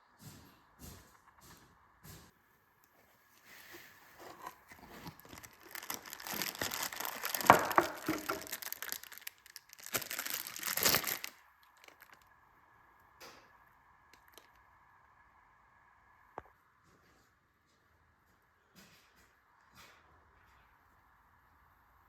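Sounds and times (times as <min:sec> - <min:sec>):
crinkling and rustling: 0:02.8 - 0:12.4.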